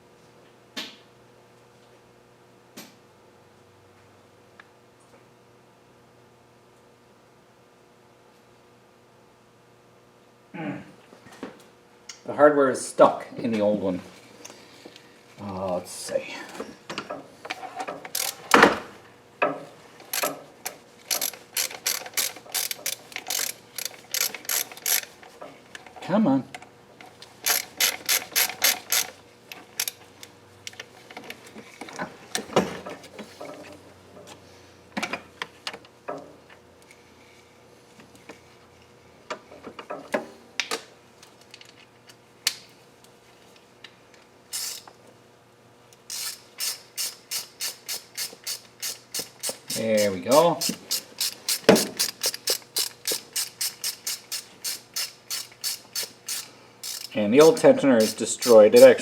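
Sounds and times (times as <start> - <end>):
ratchet wrench clicking: 18.1 - 18.6, 20.1 - 25.2, 27.4 - 29.2, 29.8 - 30.0, 44.5 - 44.9, 46.1 - 59.0.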